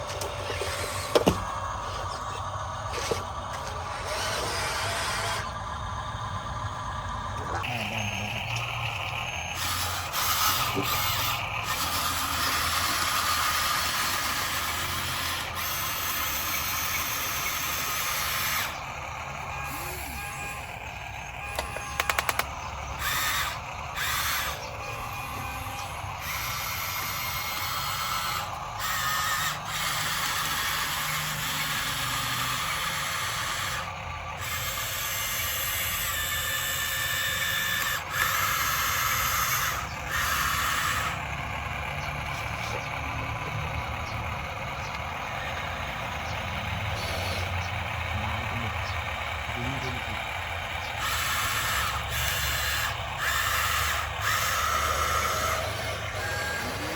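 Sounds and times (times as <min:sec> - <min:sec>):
small electric motors whirring: 0:00.0 - 0:56.9
rattle of sharp clicks: 0:21.5 - 0:24.8.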